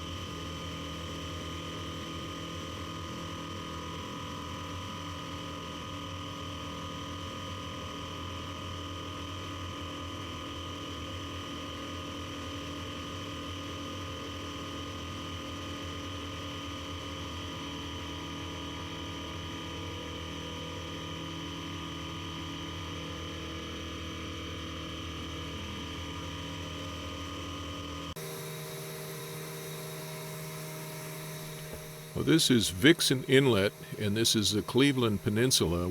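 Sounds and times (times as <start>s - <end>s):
airplane engine drone from cabin: 28.2s - 35.9s.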